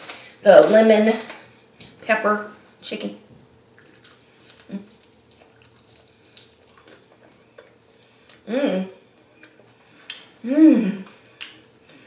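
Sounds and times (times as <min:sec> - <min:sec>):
crunchy chewing: 0:03.7 - 0:08.4.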